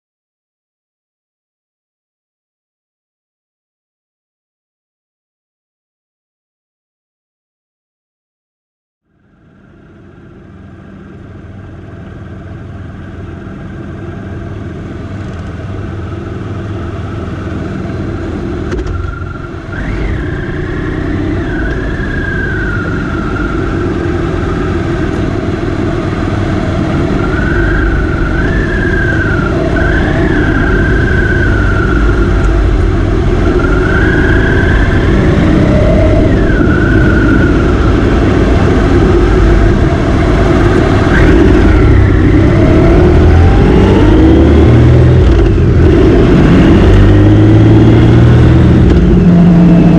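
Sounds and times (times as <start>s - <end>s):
motorcycle engine revving: 15.2s - 49.9s.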